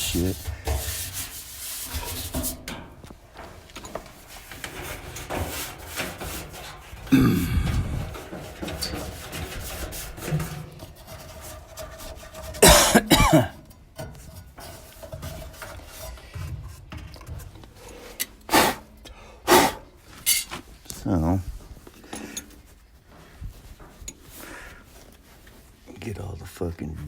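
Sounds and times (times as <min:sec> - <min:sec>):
faint scraping and handling: 0:00.0 - 0:26.7
man coughing: 0:07.1 - 0:08.1, 0:12.6 - 0:13.6.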